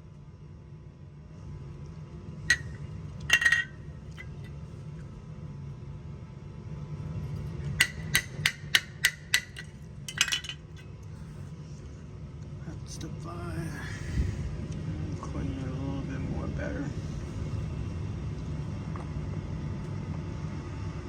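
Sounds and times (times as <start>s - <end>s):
steady low hum: 0.0s - 21.0s
metal clatter: 2.5s - 3.8s, 7.8s - 10.7s
metallic taps on furnace burners: 2.5s - 4.3s, 7.8s - 10.6s.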